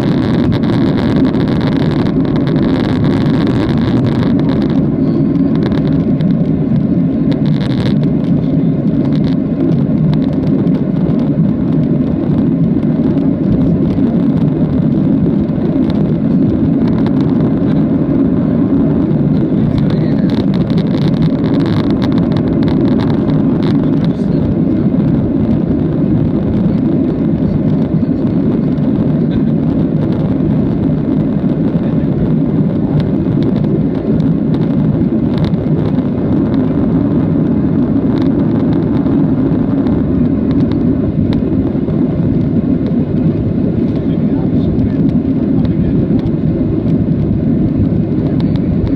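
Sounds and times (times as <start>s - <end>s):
airplane cabin engine drone: 0.0s - 48.9s.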